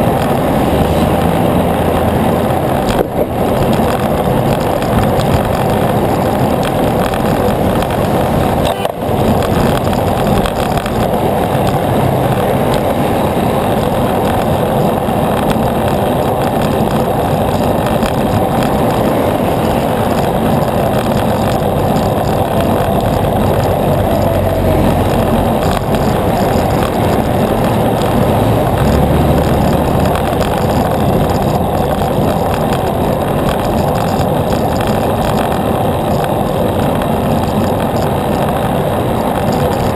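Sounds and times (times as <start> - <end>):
bicycle tyres rolling: 0.0 - 39.9
wind rushing: 0.0 - 39.9.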